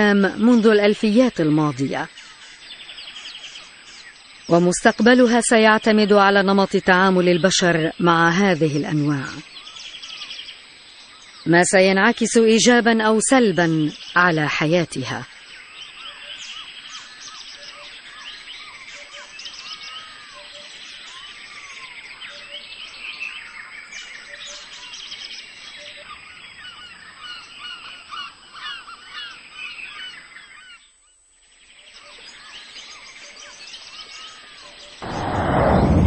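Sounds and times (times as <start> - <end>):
chorus of birds calling: 15.6 - 30.9
sudden loud burst: 35.0 - 36.0.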